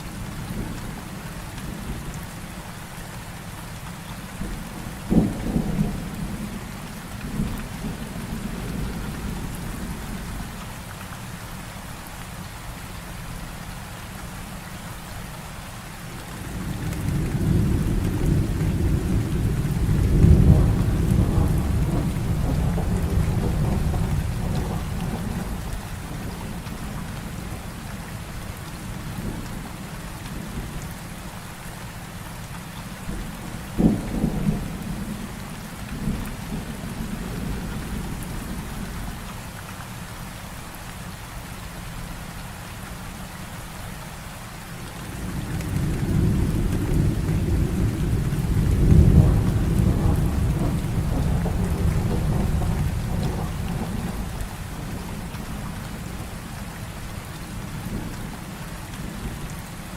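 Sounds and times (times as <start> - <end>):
low rumble of thunder: 0.0 - 2.3, 4.1 - 10.7, 16.2 - 31.0, 32.8 - 39.3, 44.9 - 59.9
heavy rain falling: 0.0 - 59.9
sharp thunderclap: 16.9 - 27.1, 33.1 - 35.2, 45.4 - 56.3.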